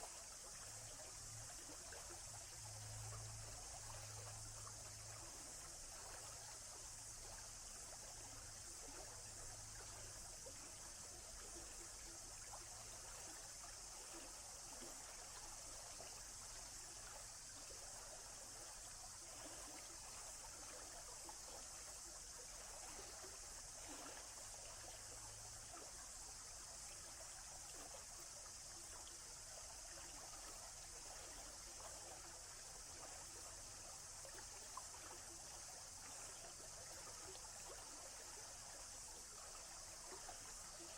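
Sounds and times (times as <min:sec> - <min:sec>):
stream trickling: 0:00.0 - 0:40.9.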